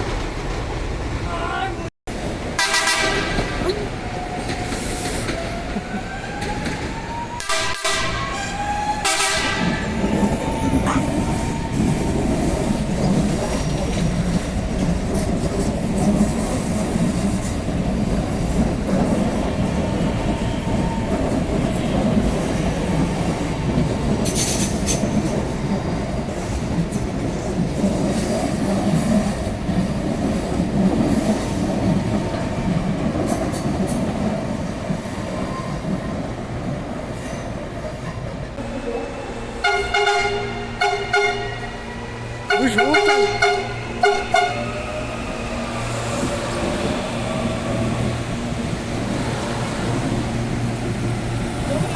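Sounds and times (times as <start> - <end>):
train wheels rumbling on rails: 0.0 - 51.9
train horn: 2.6 - 3.6, 7.4 - 11.2, 38.6 - 45.6.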